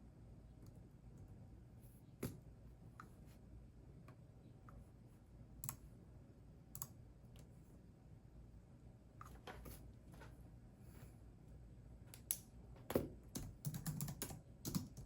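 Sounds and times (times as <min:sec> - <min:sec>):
computer keyboard keystrokes: 0:05.6 - 0:05.8, 0:13.3 - 0:15.0.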